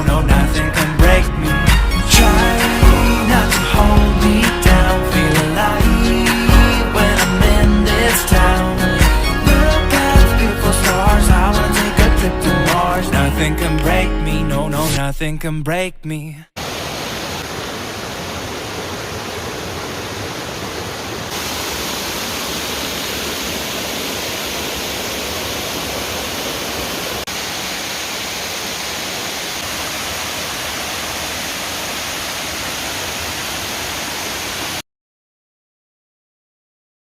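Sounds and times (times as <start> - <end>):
waterfall pouring: 16.6 - 34.8.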